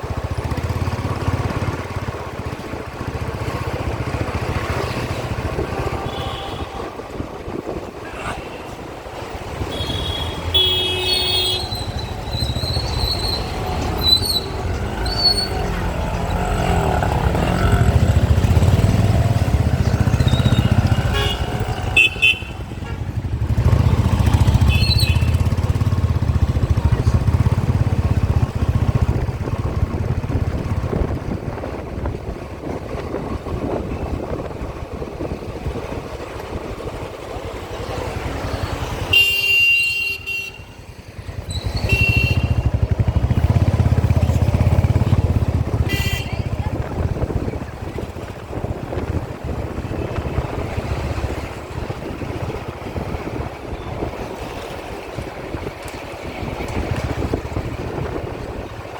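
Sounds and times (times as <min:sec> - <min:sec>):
traffic engines and wind rumble: 0:00.0 - 0:58.9
vehicle horns honking: 0:05.5 - 0:07.2, 0:09.6 - 0:12.6, 0:20.2 - 0:23.2, 0:24.4 - 0:25.5, 0:39.0 - 0:40.9, 0:41.6 - 0:43.0, 0:45.8 - 0:46.6.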